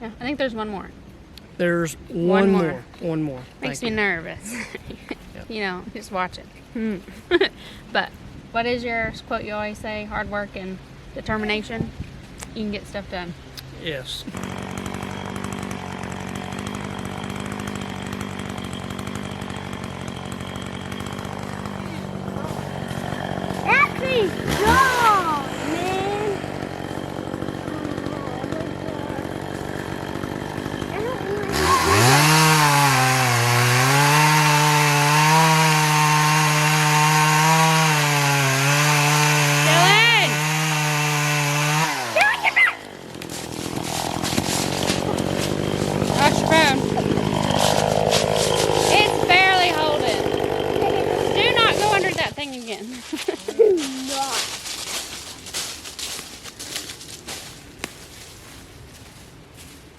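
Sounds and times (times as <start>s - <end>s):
chainsaw cutting wood: 13.6s - 57.0s.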